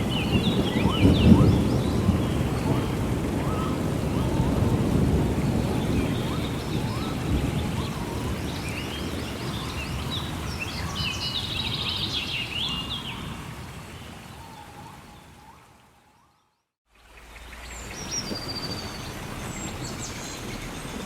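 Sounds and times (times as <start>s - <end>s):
low thunder rumble: 0.0s - 12.1s
steady rain: 0.0s - 16.1s, 16.9s - 21.0s
songbirds chirping: 0.0s - 21.0s.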